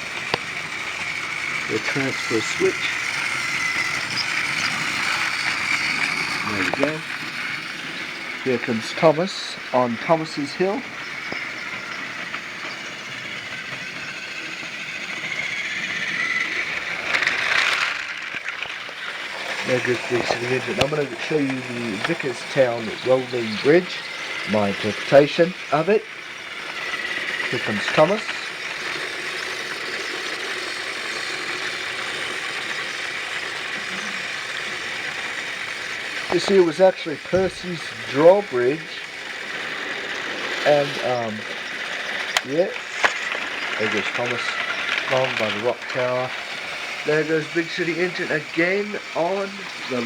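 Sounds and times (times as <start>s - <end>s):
toy train motor whirring: 0.0s - 50.0s
clicks: 41.8s - 46.3s.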